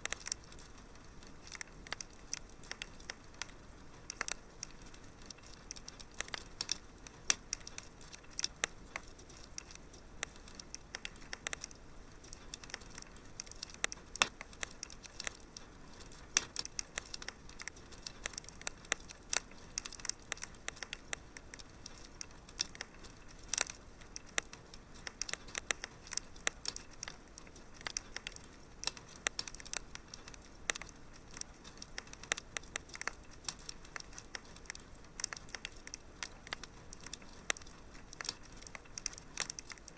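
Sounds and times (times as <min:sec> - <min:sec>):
soft steady hiss: 0:00.0 - 0:39.9
wood fire crackling: 0:00.0 - 0:39.9.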